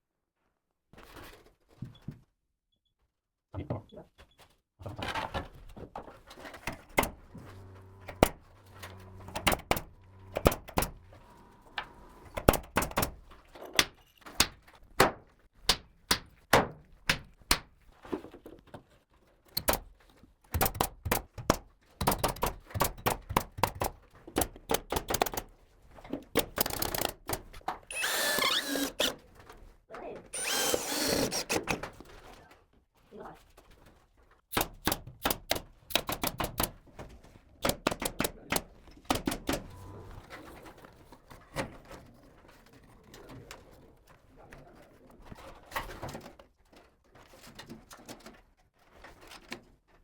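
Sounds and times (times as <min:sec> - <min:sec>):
power tool bursts: 0:27.9 - 0:29.2, 0:30.4 - 0:31.8.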